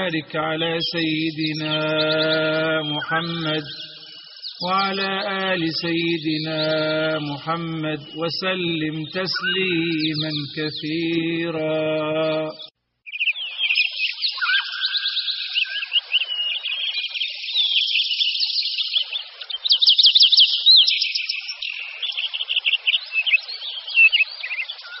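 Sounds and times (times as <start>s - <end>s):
songbirds chirping and warbling: 0.0s - 25.0s.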